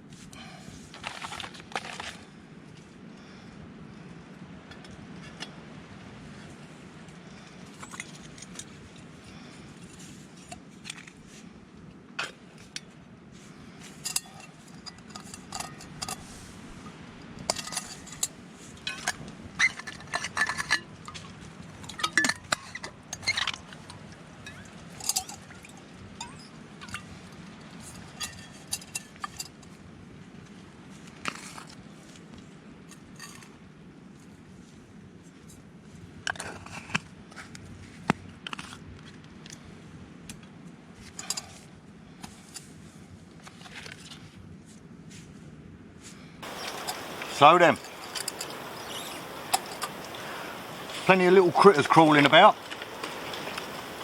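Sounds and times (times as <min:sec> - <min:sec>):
low background noise: 0:00.0 - 0:54.0
metal cookware clinking: 0:46.4 - 0:54.0.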